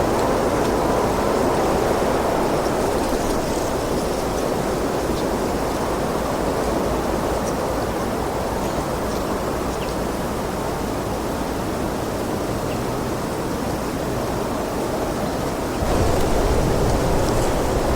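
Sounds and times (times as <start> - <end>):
wind blowing: 15.8 - 17.9.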